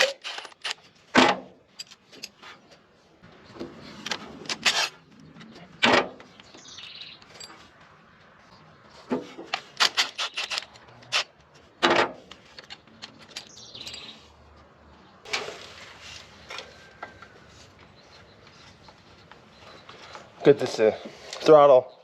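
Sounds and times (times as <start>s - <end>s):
metal scrape: 3.8s - 5.0s, 15.3s - 16.8s
hand tools clinking on engine parts: 7.2s - 7.8s, 11.8s - 14.2s
faint bird chirping: 13.4s - 14.4s, 16.0s - 22.0s.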